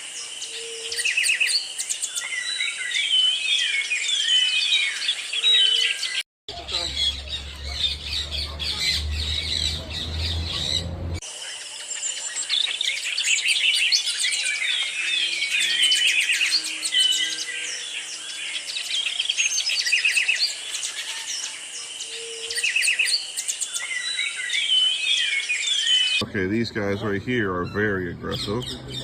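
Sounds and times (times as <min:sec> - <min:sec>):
parrots chirping and squawking: 0:04.2 - 0:11.2, 0:13.4 - 0:29.0.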